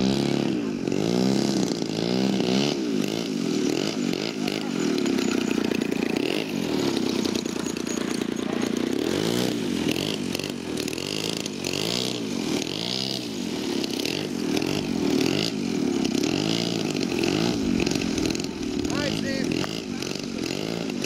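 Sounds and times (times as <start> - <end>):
model airplane engines running: 0.0 - 21.0.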